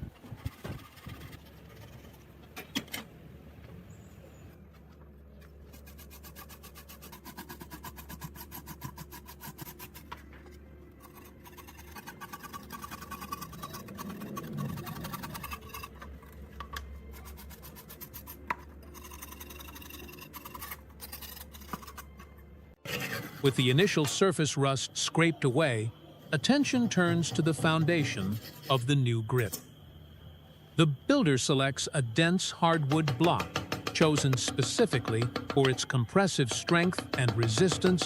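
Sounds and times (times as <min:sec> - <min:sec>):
scraping rust off steel: 0:05.3 - 0:24.2, 0:27.2 - 0:28.8.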